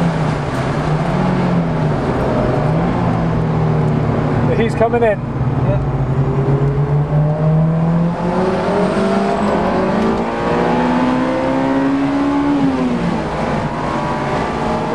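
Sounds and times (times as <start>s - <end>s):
car engine accelerating: 0.0s - 14.9s.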